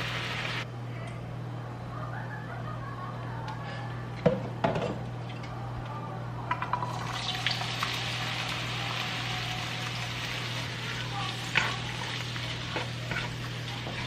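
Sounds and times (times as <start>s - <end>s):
food sizzling in a pan: 0.0s - 0.6s, 6.8s - 14.0s.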